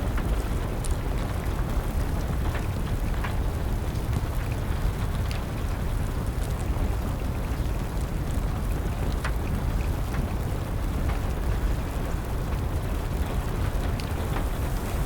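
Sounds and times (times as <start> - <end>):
steady rain: 0.0 - 15.0
wood fire crackling: 12.3 - 15.0.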